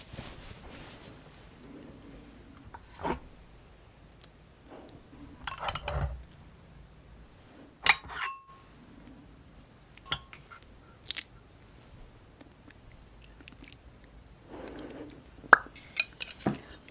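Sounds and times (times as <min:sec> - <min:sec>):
utensils clinking against dishes: 0:05.4 - 0:06.2, 0:07.8 - 0:08.7, 0:10.1 - 0:10.7, 0:15.8 - 0:16.9.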